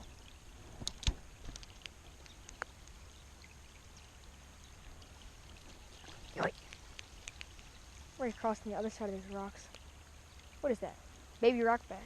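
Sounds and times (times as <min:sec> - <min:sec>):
creek water over rocks: 0:00.0 - 0:12.0
sharp clicks: 0:06.6 - 0:07.8.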